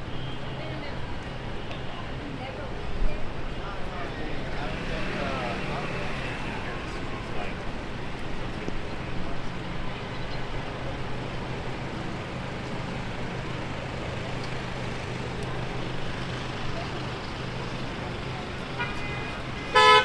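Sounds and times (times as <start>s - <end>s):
traffic on wet road: 0.0s - 20.0s
vehicle engine humming: 4.0s - 20.0s.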